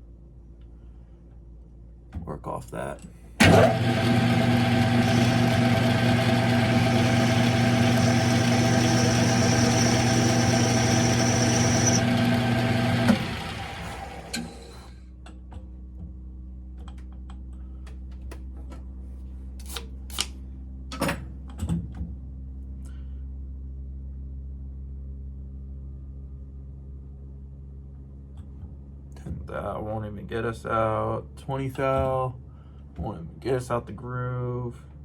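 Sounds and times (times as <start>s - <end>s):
lathe motor hum and whine: 3.4s - 14.9s
lathe spinning down: 3.4s - 14.9s.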